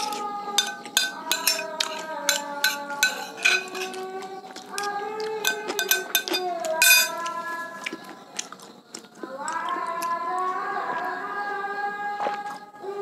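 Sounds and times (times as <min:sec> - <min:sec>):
metal spoon clinking on plate: 0:00.0 - 0:04.2, 0:04.8 - 0:07.3
child chanting over loudspeaker: 0:00.0 - 0:13.0
chewing and mouth clicks: 0:03.9 - 0:11.1.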